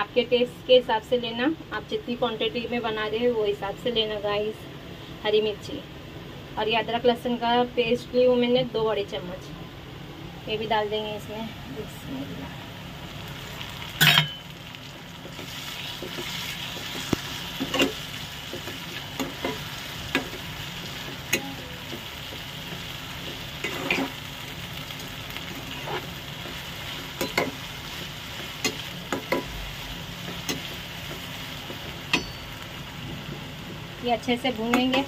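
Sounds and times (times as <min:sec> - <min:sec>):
onions sizzling in hot oil: 0:10.6 - 0:35.0
spatula scraping a pan: 0:23.3 - 0:24.2, 0:25.5 - 0:26.6.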